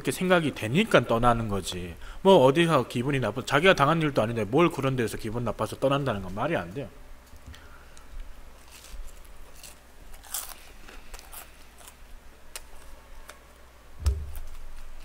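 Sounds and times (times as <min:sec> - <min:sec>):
crunching fried chicken: 0:08.6 - 0:13.0
low thump: 0:14.0 - 0:14.6.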